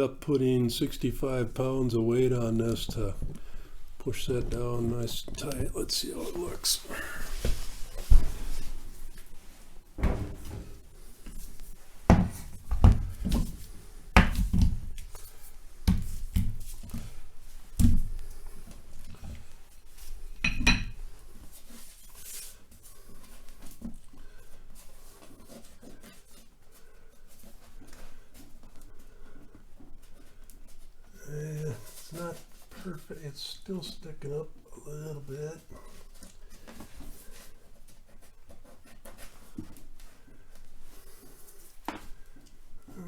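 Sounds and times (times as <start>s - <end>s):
weight plates thudding and clunking: 10.0s - 11.0s.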